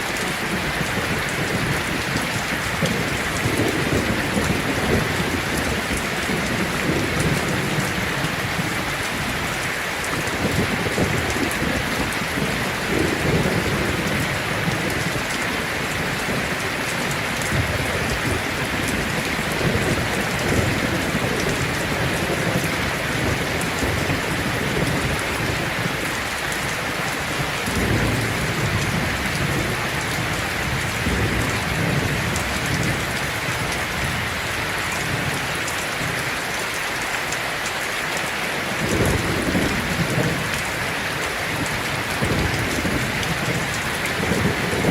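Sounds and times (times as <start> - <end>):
heavy rain on a tin roof: 0.0 - 44.9
low thunder rumbling: 10.2 - 26.6, 27.4 - 36.2, 38.8 - 44.9.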